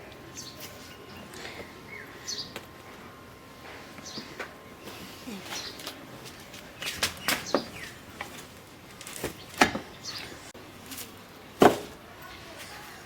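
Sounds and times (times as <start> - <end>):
birds chirping: 0.3 - 2.7, 3.9 - 8.1, 9.2 - 10.5.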